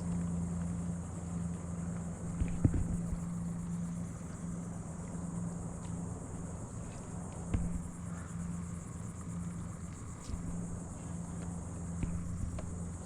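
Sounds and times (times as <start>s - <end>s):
steady low hum: 0.0s - 13.0s
high insect buzzing: 2.1s - 13.0s
light knocks: 7.4s - 8.1s.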